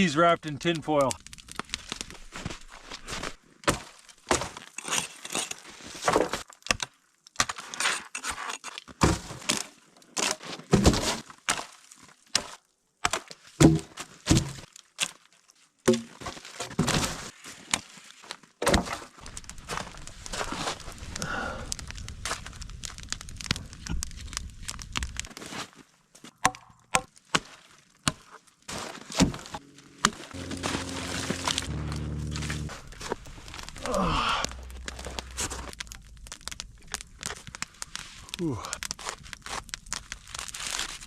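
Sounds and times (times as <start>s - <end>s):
wood being chopped: 13.0s - 14.6s, 15.9s - 16.1s.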